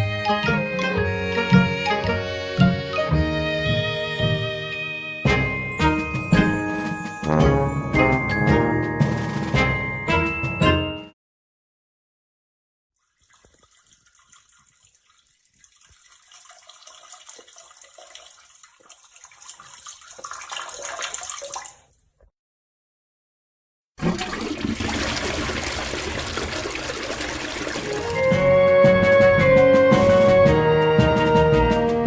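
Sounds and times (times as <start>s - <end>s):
rushing water-like noise: 24.7s - 28.5s.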